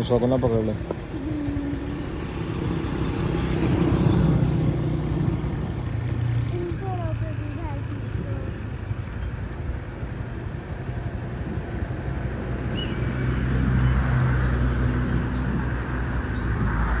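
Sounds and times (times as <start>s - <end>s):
vehicle engine rumbling: 0.0s - 17.0s
bird whistled call: 12.7s - 13.6s.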